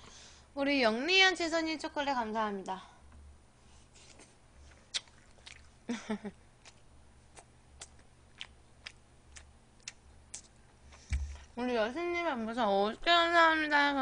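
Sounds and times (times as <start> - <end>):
person chewing food: 4.6 - 5.8, 6.5 - 11.4.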